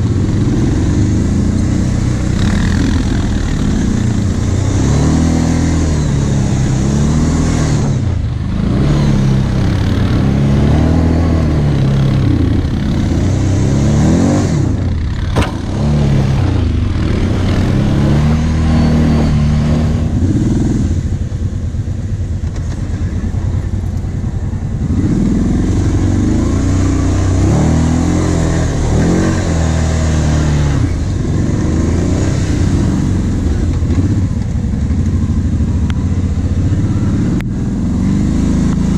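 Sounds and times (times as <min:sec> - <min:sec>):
quad bike engine revving: 0:00.0 - 0:21.8, 0:22.4 - 0:38.9
sharp knock: 0:15.3 - 0:15.8.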